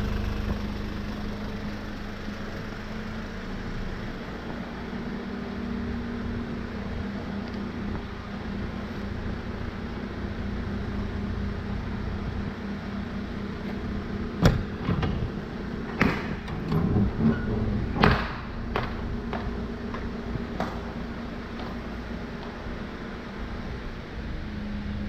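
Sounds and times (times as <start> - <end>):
truck engine idling: 0.0 - 16.5
sharp knocks and clunks: 14.4 - 15.3.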